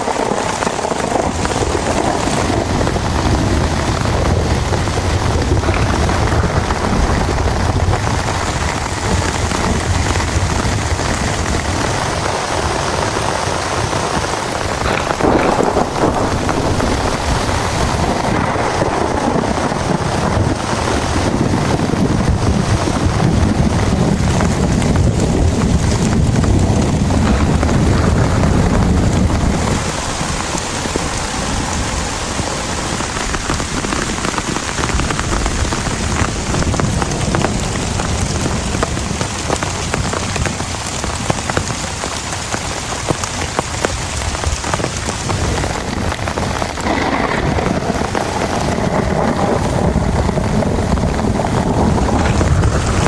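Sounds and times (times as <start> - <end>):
sharp crack: 0.0 - 9.5, 14.1 - 22.0, 26.2 - 32.0, 46.0 - 53.0
heavy rain pouring: 0.0 - 53.0
low rumble: 14.3 - 39.2, 45.9 - 53.0.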